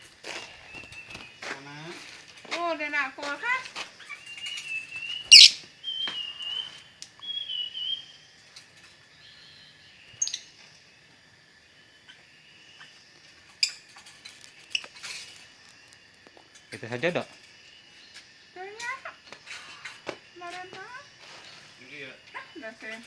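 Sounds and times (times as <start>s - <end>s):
lovebirds chirping and squawking: 0.2s - 10.8s, 11.9s - 15.5s
shrill bird calls: 3.4s - 8.4s.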